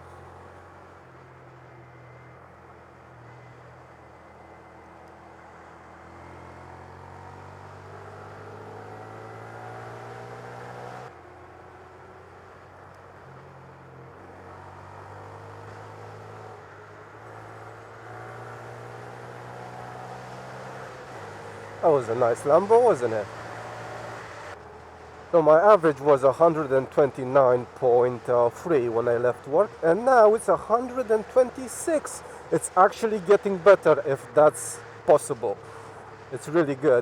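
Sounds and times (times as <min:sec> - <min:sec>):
motorcycle engine running: 0:17.8 - 0:37.0.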